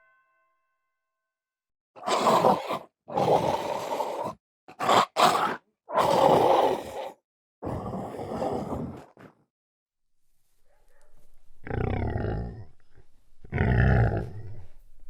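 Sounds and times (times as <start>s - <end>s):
dinosaur roars: 11.6s - 12.8s, 13.4s - 14.7s.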